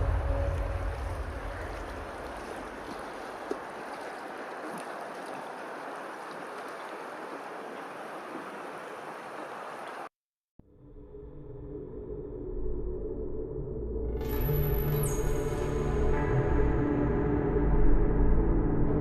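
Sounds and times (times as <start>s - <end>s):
water rushing: 0.0s - 10.1s.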